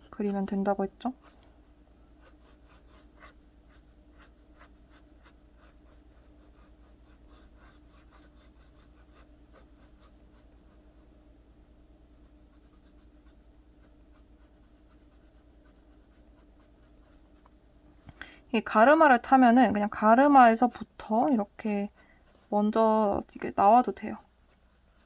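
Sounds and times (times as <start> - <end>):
pencil scratching on paper: 0.0 - 1.4, 2.2 - 11.1, 12.0 - 17.2, 20.0 - 22.8, 23.4 - 25.0.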